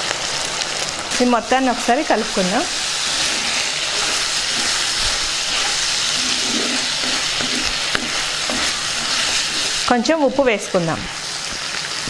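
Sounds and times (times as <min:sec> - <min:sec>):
chicken sizzling in hot oil: 0:00.0 - 0:12.0
spatula stirring: 0:01.5 - 0:10.2.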